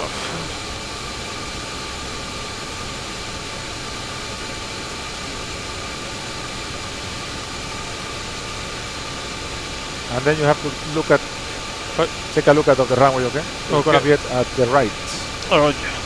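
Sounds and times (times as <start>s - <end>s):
cockpit air and engine rush: 0.0s - 2.6s, 6.3s - 16.0s
faint steady whine: 0.0s - 16.0s.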